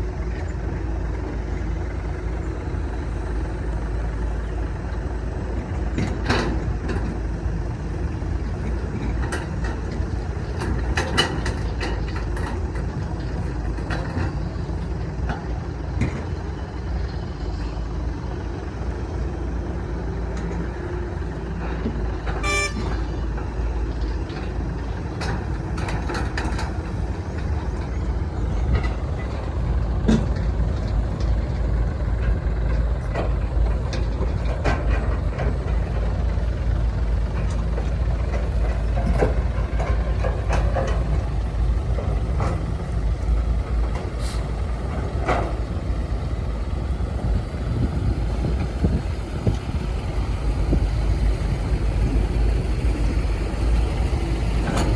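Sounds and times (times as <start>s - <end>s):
diesel engine rumbling: 0.0s - 54.9s
metallic clanks and squeaks: 8.7s - 16.4s, 20.4s - 31.3s
short pitched toot: 22.4s - 23.0s.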